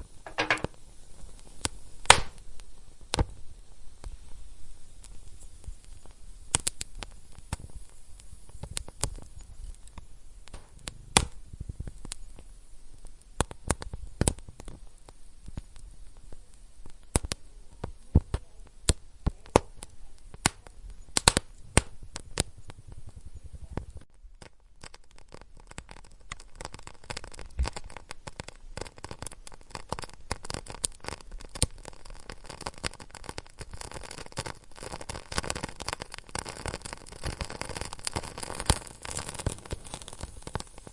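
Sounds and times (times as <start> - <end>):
fireplace fire crackling: 0.0 - 40.9
sharp pops of fire: 0.0 - 40.9
soft low rumble: 7.3 - 16.6.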